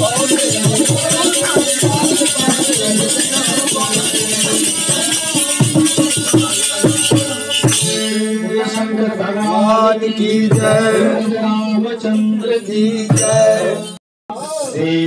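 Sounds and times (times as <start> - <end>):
drum strokes: 0.0 - 8.8
jingling percussion: 0.0 - 14.0.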